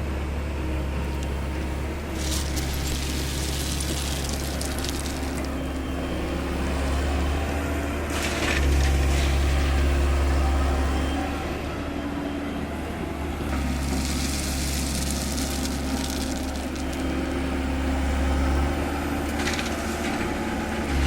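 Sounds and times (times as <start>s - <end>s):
excavator diesel engine running: 0.0s - 21.0s
crushed stone crash: 1.0s - 6.4s, 13.6s - 17.6s.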